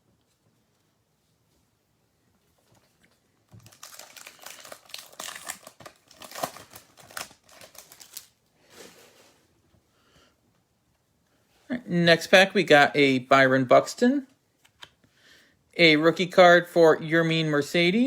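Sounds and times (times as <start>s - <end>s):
plastic wrapper crinkling: 3.5s - 8.4s
wrapper rustle: 3.5s - 9.4s.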